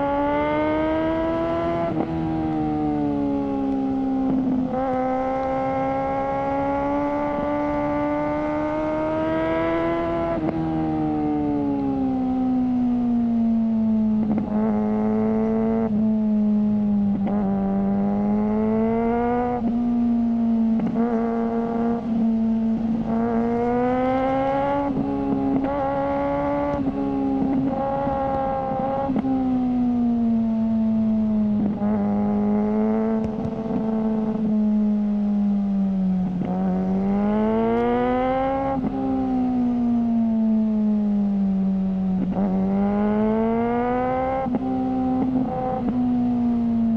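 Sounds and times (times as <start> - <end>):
motorcycle engine at high revs: 0.0 - 46.9.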